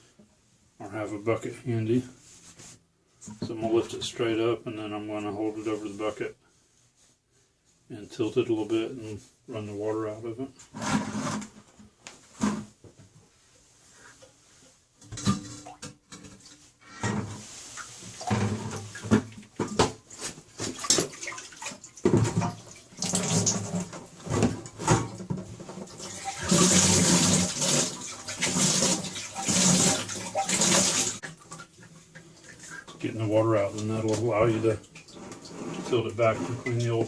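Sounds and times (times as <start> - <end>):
water pouring into a bucket: 20.6 - 24.3, 25.8 - 31.8.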